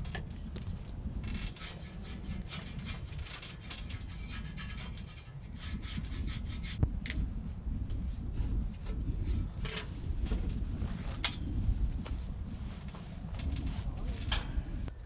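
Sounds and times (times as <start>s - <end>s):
steady low rumble: 0.0s - 15.0s
scraping strokes by hand: 1.2s - 6.8s.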